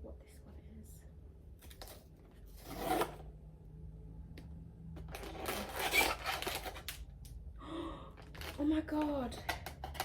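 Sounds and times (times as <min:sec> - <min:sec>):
packaging rustling and tearing: 0:05.1 - 0:07.1, 0:08.2 - 0:08.7.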